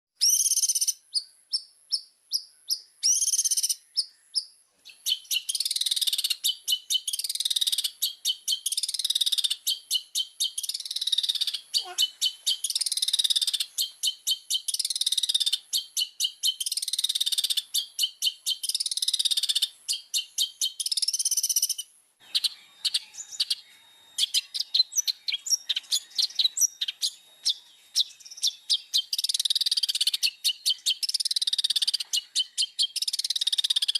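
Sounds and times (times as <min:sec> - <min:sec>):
shrike singing: 0:05.0 - 0:33.9
rapid scratchy bird chattering: 0:05.1 - 0:15.6, 0:24.3 - 0:33.9.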